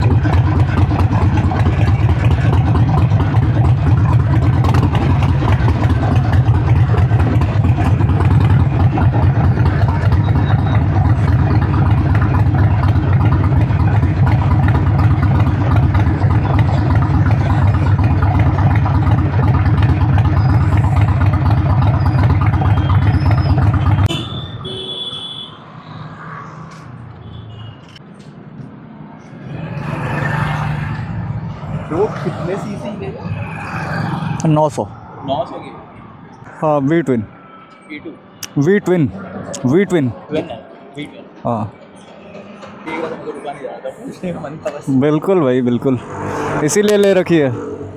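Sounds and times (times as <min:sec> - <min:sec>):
motorcycle engine running: 0:00.0 - 0:25.4.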